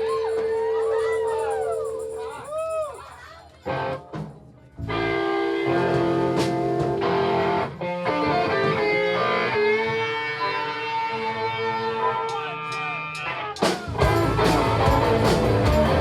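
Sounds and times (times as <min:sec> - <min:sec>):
electric guitars strumming chords: 0:04.8 - 0:16.0.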